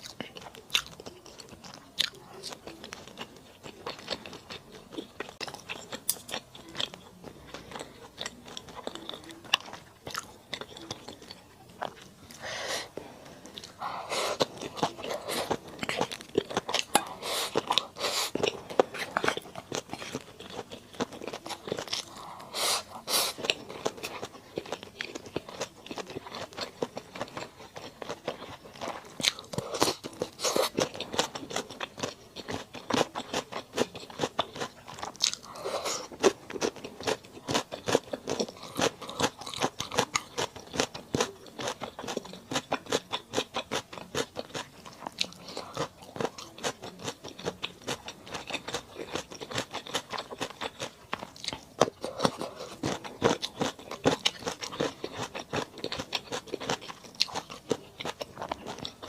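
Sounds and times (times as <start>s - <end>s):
chewing with crisp crunches: 0.0s - 59.0s.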